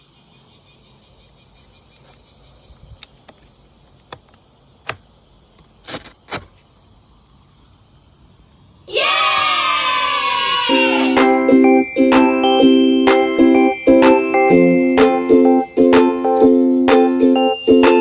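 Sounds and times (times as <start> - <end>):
faint outdoor background: 0.0 - 18.0
rustling scrapes: 5.7 - 6.7.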